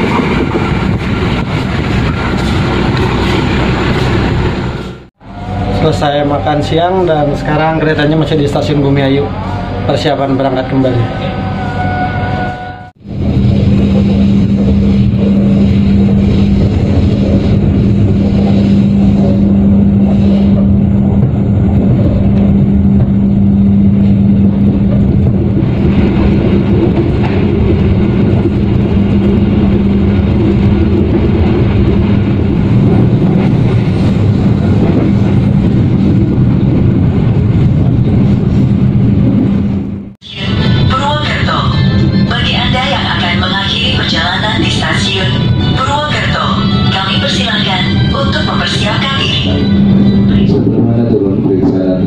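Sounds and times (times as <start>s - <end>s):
train wheels rumbling on rails: 0.0s - 52.0s
constant hum: 13.0s - 52.0s.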